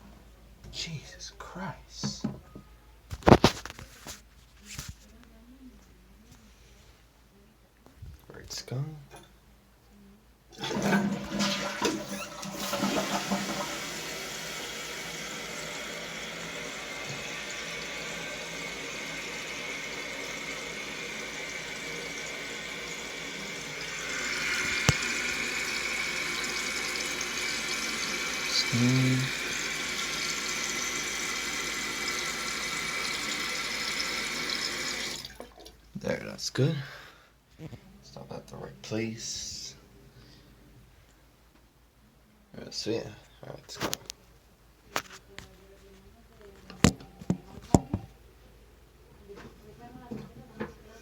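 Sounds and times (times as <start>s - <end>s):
toilet flushing: 10.5s - 35.8s
toilet tank refilling hiss: 10.6s - 35.5s.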